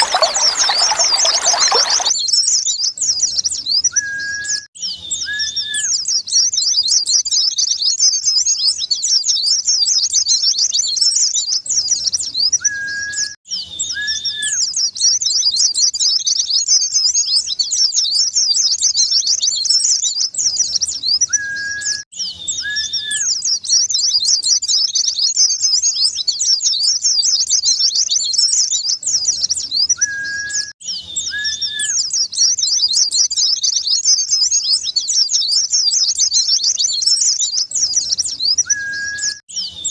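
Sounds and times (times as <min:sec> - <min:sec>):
bird twittering song: 0:00.0 - 0:39.9
short low bird whistles: 0:29.9 - 0:32.2, 0:37.9 - 0:39.9.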